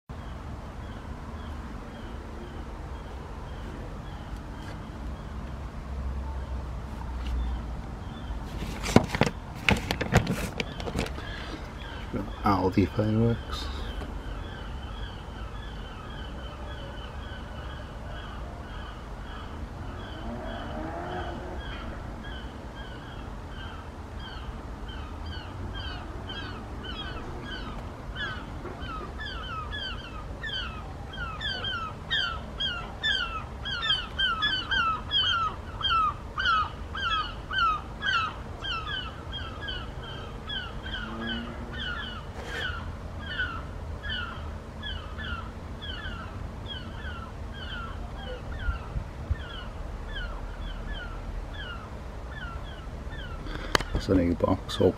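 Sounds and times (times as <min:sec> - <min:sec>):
low outdoor rumble: 0:00.1 - 0:54.9
bird calling in falling notes: 0:10.6 - 0:54.1.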